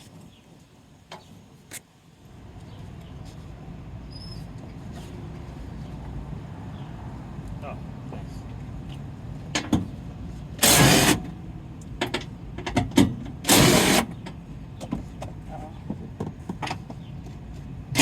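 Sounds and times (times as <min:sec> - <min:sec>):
power tool bursts: 0:10.6 - 0:11.2, 0:13.4 - 0:14.1.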